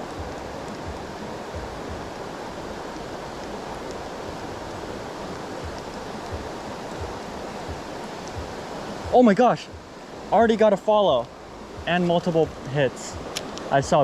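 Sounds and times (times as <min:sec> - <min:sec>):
fast stream rushing: 0:00.0 - 0:14.0
faint low thumps: 0:05.6 - 0:09.9.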